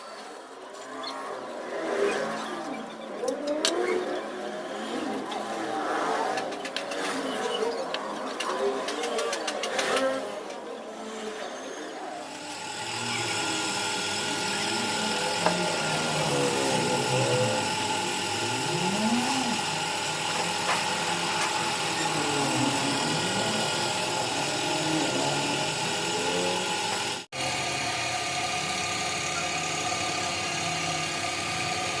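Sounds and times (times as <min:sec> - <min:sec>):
power tool whining: 0:11.6 - 0:32.0.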